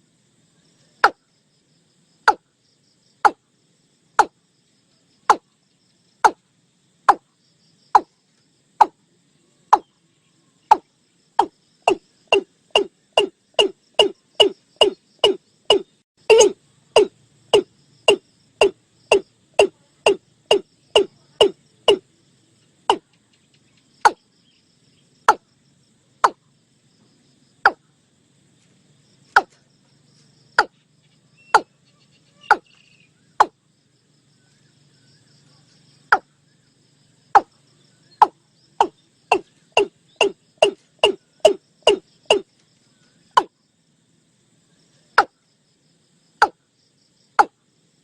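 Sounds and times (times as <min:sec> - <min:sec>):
bird calling hollow notes: 0:02.3 - 0:02.5, 0:10.7 - 0:22.0, 0:26.2 - 0:26.4, 0:31.4 - 0:31.8, 0:32.4 - 0:33.6, 0:38.2 - 0:42.4.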